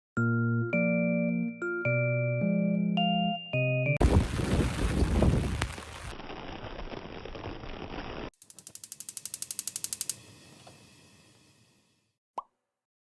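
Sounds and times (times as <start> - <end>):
mechanism ratcheting clicks: 8.4 - 10.2.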